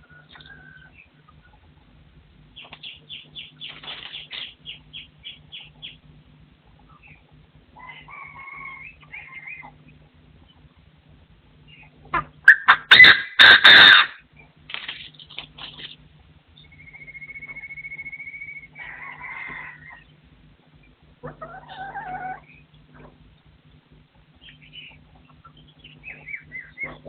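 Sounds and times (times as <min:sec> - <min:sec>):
partridge calling: 0:16.6 - 0:18.7, 0:24.4 - 0:27.0.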